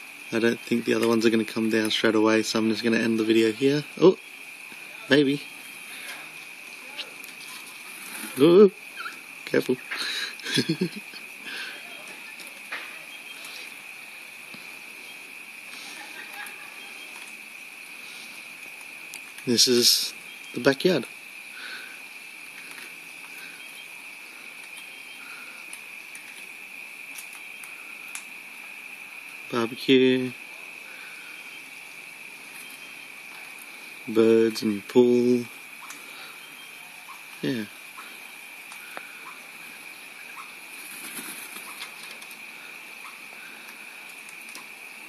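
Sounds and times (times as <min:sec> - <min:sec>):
high-pitched insect chorus: 0:00.0 - 0:45.0
faint bird chirps: 0:02.7 - 0:14.0, 0:14.7 - 0:17.2, 0:19.5 - 0:20.8, 0:23.1 - 0:25.7, 0:30.8 - 0:34.1, 0:35.0 - 0:41.8
birds fluttering wings: 0:09.0 - 0:28.7, 0:29.5 - 0:45.0.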